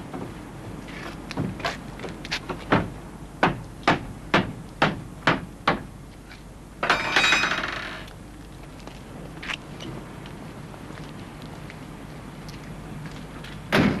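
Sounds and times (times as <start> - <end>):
sharp knocks: 2.5 - 5.9.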